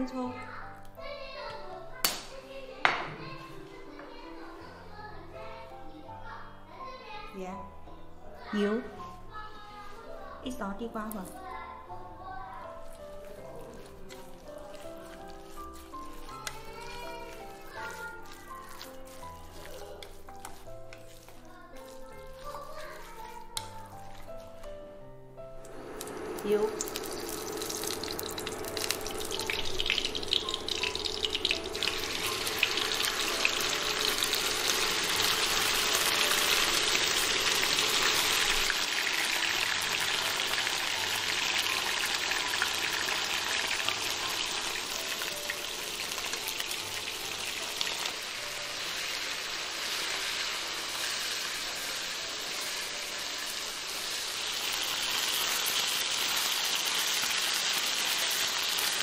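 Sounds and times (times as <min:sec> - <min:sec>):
meat sizzling in a wok: 0:12.6 - 0:59.0.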